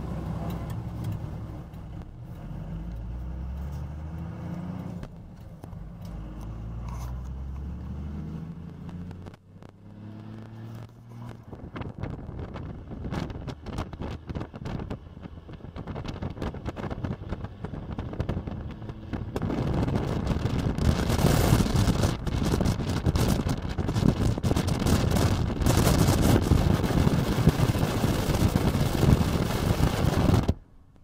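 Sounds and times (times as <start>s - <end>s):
diesel pickup engine running: 0.0s - 9.9s
wind buffeting microphone: 11.2s - 30.7s.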